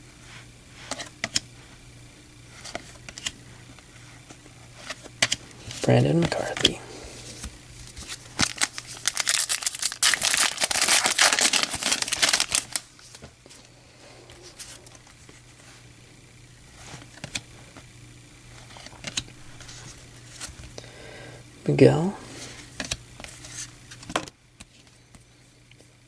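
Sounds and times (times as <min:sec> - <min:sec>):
foil wrapper crinkling and tearing: 0:07.3 - 0:13.2.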